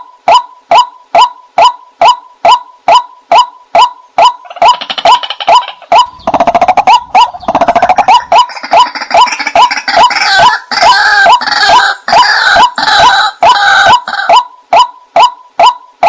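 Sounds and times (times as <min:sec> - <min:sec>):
rapid bird chatter: 0:04.4 - 0:10.5.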